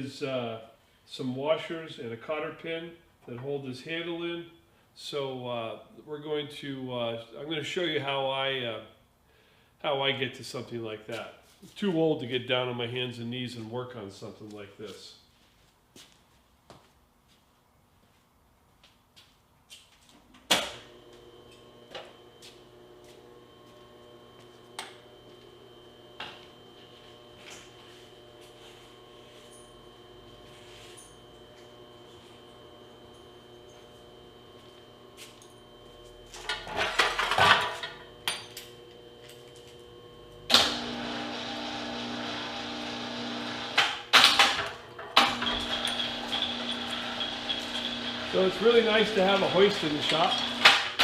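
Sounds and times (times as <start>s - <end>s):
electric hum: 20.5s - 51.0s.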